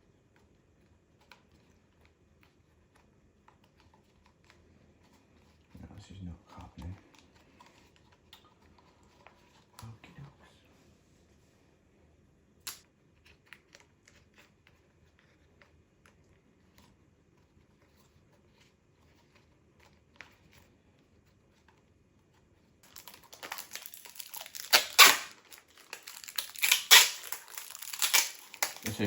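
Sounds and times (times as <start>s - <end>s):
tape crinkling and tearing: 22.8s - 29.0s.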